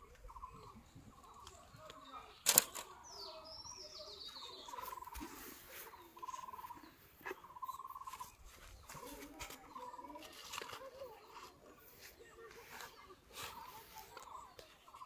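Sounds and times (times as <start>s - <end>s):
handling clicks and rustles: 1.2s - 3.0s
bird trilling call: 6.0s - 9.0s.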